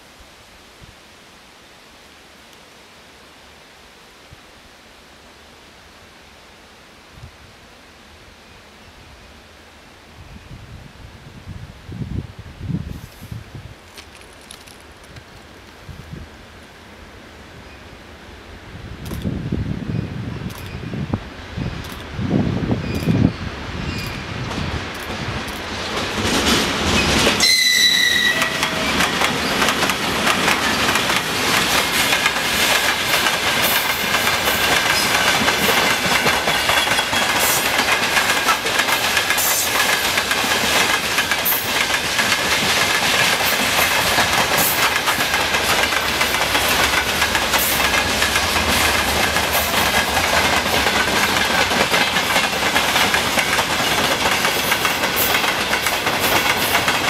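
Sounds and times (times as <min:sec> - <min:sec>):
train wheels clattering over rail joints: 0:23.9 - 0:27.5, 0:28.4 - 0:57.0
faint high wheel squeal: 0:27.4 - 0:29.5.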